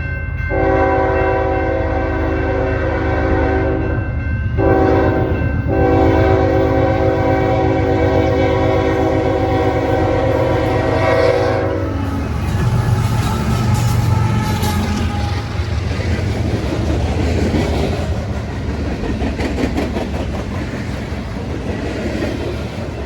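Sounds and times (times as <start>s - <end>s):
low rumble of train: 0.0s - 23.0s
locomotive air horn blasts: 0.5s - 4.0s, 4.6s - 15.8s.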